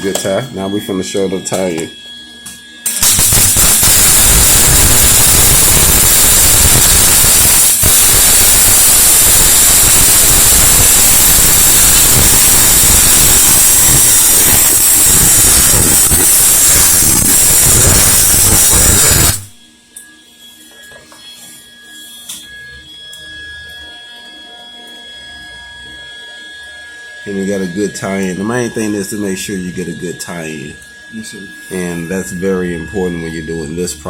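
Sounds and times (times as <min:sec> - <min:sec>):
welding arc crackling hiss: 0:02.9 - 0:19.7.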